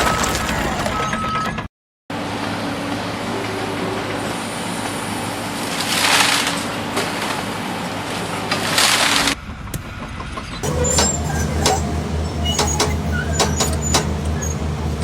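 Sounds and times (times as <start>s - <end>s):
engine running steadily: 10.6s - 15.0s.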